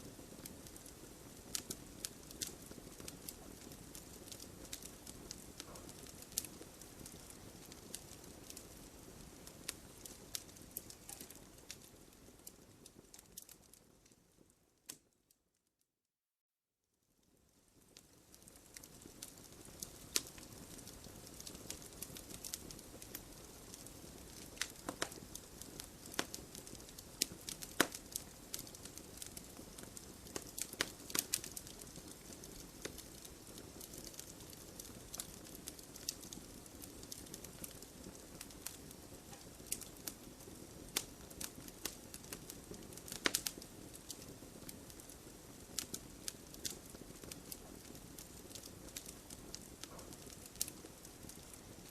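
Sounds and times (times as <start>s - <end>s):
burning wood crackling and popping: 0.0s - 15.1s, 17.2s - 51.9s
low rustle of flames: 0.0s - 15.6s, 17.0s - 51.9s.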